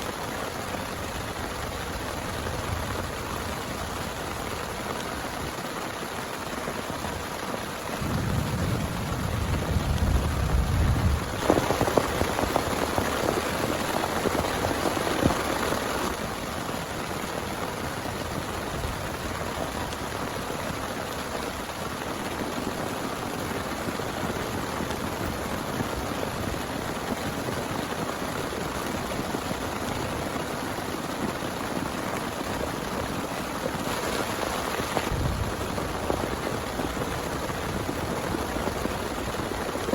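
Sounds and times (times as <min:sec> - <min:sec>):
heavy rain: 0:00.0 - 0:39.9
thunder rumbling: 0:08.0 - 0:16.2, 0:34.2 - 0:39.9.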